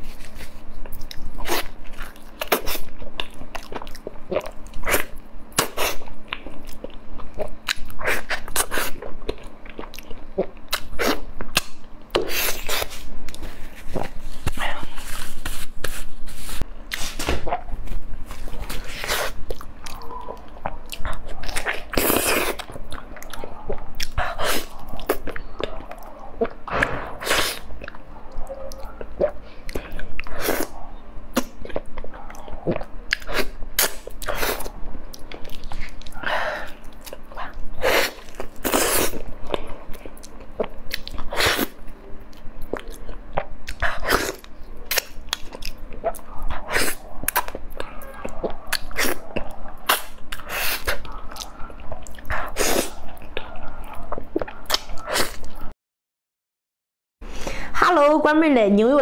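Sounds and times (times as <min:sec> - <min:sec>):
person chewing and biting: 0:00.0 - 0:28.1, 0:28.7 - 0:55.7
mouth clicks and smacks: 0:40.2 - 0:55.6.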